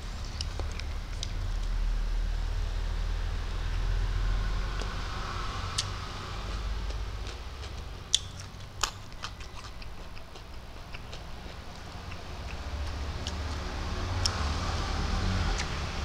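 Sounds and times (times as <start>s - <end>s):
man chewing: 0.0s - 1.8s, 5.8s - 14.7s
low steady hum: 0.0s - 16.0s
wet mouth smacks and clicks: 7.2s - 13.5s.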